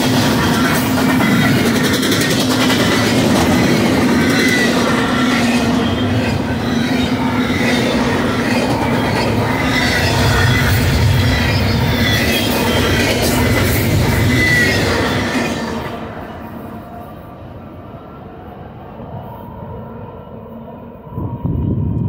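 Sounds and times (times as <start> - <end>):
steel wheels rumbling on rail: 0.0 - 22.0
high wheel squeal: 2.8 - 16.5.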